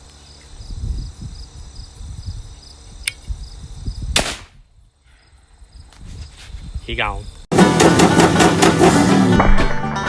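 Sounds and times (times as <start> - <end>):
crickets chirping: 0.0 - 7.5
sharp click: 3.0 - 3.3.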